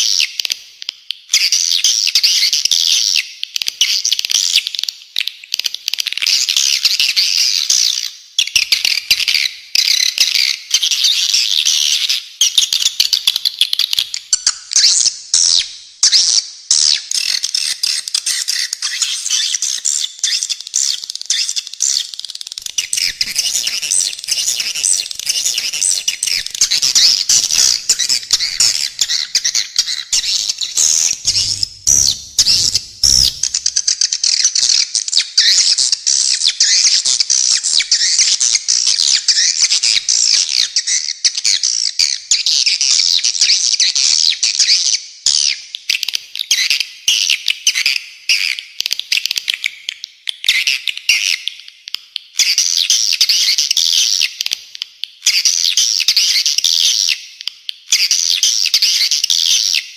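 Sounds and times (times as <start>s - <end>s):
birds chirping and twittering: 17.1s - 35.7s
low thuds: 30.3s - 33.8s.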